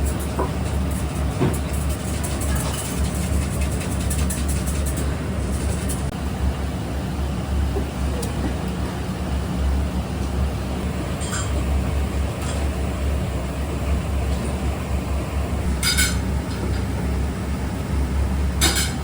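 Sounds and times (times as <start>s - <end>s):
kitchen machinery hum: 0.0s - 19.0s
tableware clinking: 15.8s - 16.2s, 18.6s - 19.0s.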